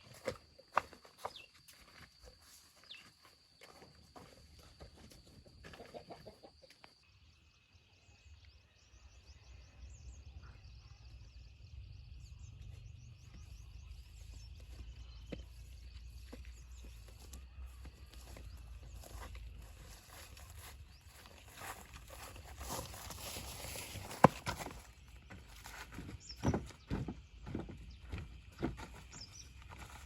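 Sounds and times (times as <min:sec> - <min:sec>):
birds chirping: 0:07.2 - 0:30.0.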